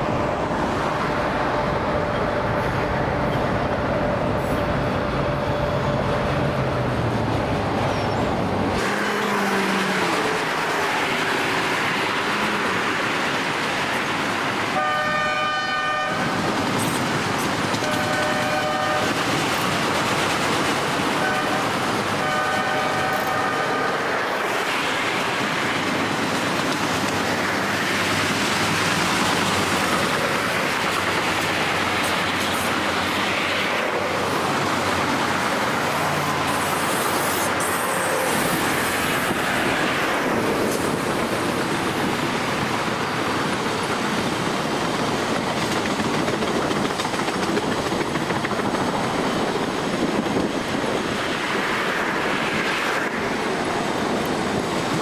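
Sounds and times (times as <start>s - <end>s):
railroad cars rolling past: 0.0s - 55.0s
wheels clacking over rail joints: 16.3s - 22.3s, 24.4s - 52.0s.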